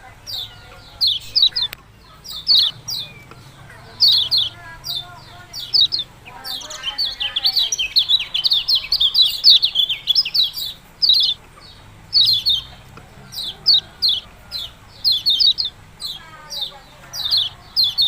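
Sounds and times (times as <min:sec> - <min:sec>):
songbird chattering high chirps: 0:00.0 - 0:18.0.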